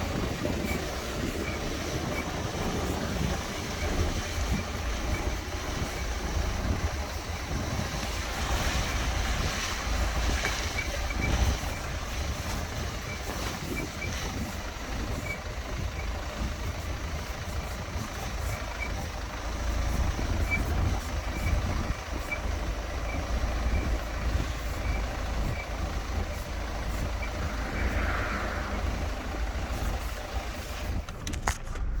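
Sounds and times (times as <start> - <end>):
moving car rumble: 0.0 - 32.0
short high squeaks from car: 9.7 - 11.9.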